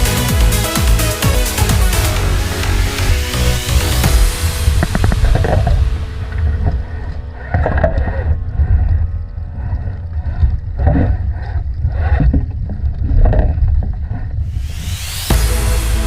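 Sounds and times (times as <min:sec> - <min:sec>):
water splashing against hull: 0:02.4 - 0:14.6.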